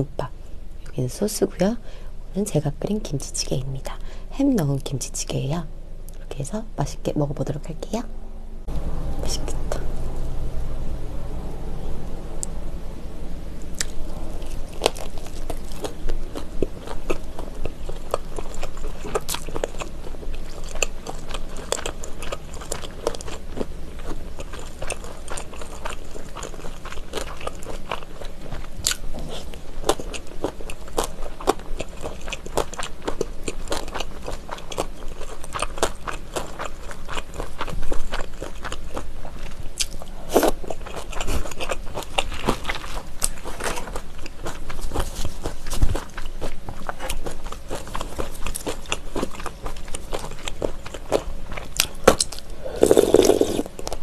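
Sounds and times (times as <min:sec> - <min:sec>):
close chewing mouth clicks: 0:14.6 - 0:54.0.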